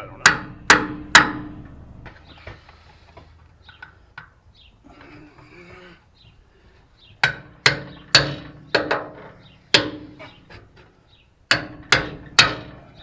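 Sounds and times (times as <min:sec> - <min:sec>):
hammer striking metal: 0:00.2 - 0:01.7, 0:07.2 - 0:10.4, 0:11.5 - 0:13.0.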